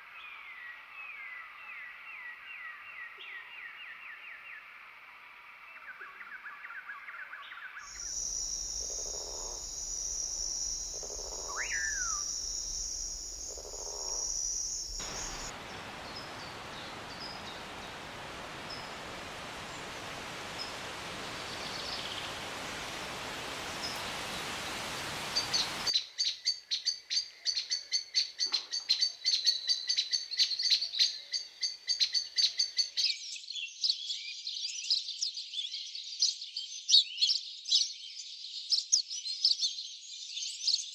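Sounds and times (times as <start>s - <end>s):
high-pitched insect buzz: 7.9s - 15.5s
short falling whistle: 7.9s - 15.5s
even hiss: 7.9s - 25.9s
rapid dense bird chirping: 7.9s - 25.9s.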